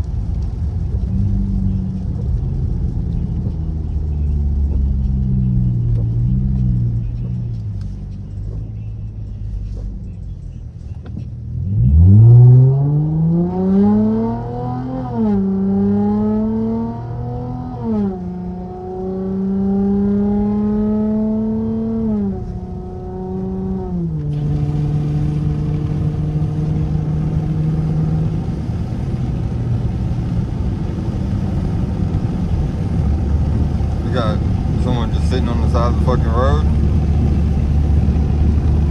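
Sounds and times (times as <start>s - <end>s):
car exhaust accelerating: 0.0s - 38.9s
tyres hissing on wet road: 24.3s - 38.9s.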